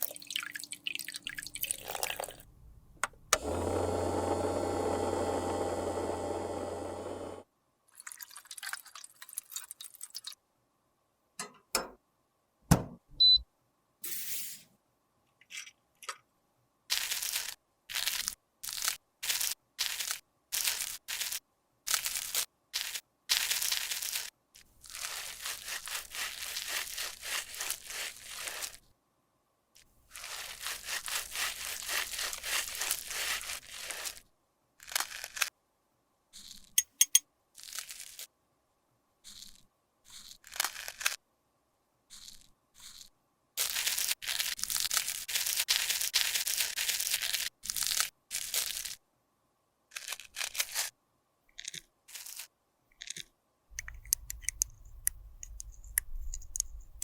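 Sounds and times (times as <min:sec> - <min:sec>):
crackly crunching: 0:16.9 - 0:28.8, 0:30.1 - 0:34.2
scraping or crushing strokes: 0:17.0 - 0:28.8, 0:30.1 - 0:34.2
clicks and taps: 0:53.0 - 0:57.0.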